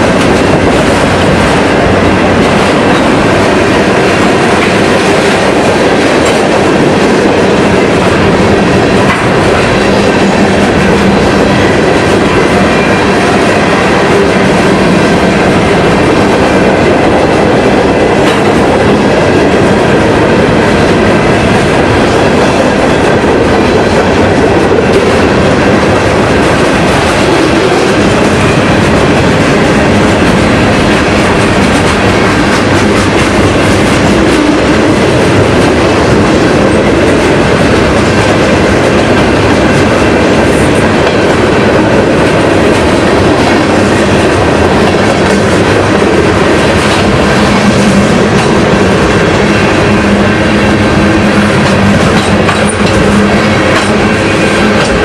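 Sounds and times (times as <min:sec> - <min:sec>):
train wheels rolling on rail: 0:00.0 - 0:55.0.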